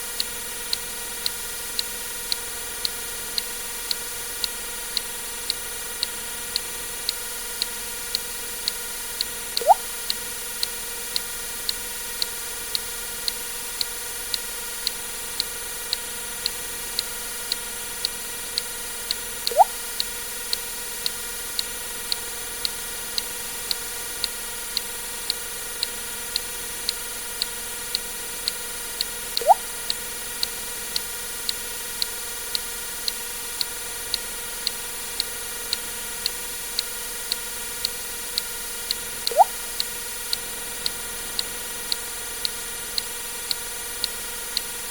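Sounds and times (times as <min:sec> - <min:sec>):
short sharp clicks: 0:09.6 - 0:09.8, 0:19.5 - 0:19.8, 0:29.4 - 0:29.7, 0:39.2 - 0:39.6
counter ticking: 0:09.6 - 0:09.9, 0:19.4 - 0:20.1, 0:27.9 - 0:29.7, 0:34.1 - 0:43.1.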